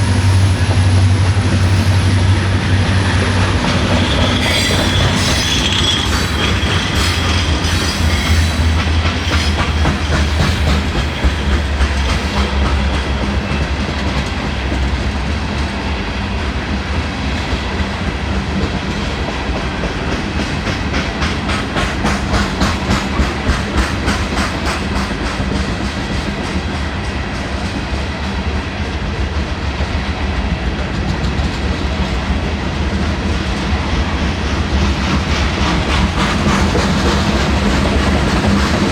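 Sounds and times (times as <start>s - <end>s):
train wheels clicking over rail joints: 0.0s - 29.9s, 30.6s - 38.9s
train rumble: 0.0s - 38.9s
wheel squeal: 3.8s - 8.6s.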